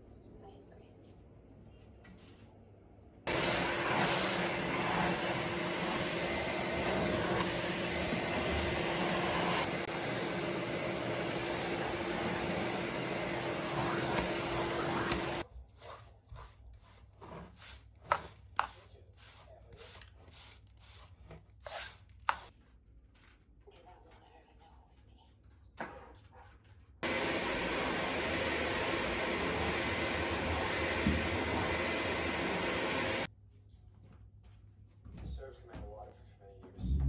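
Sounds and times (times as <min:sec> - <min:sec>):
vacuum cleaner running: 0:03.3 - 0:15.5, 0:27.0 - 0:33.3.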